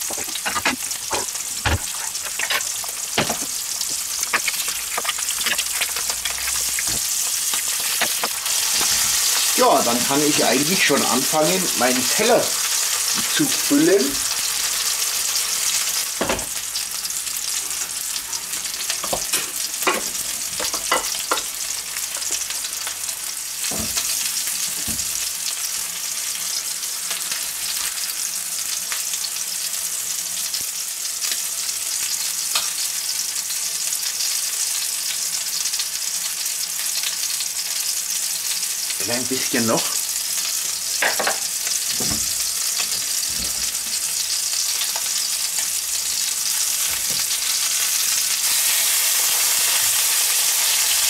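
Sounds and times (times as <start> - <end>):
utensils knocking against pans: 0.0 - 9.2
meat and egg sizzling in oil: 0.0 - 51.0.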